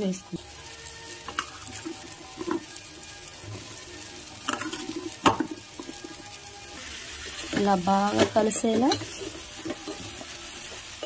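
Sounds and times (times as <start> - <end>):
low sizzle in a pot: 0.0 - 11.0
vegetable pieces knocking in metal pot: 1.2 - 2.8, 3.4 - 6.5, 7.3 - 10.8.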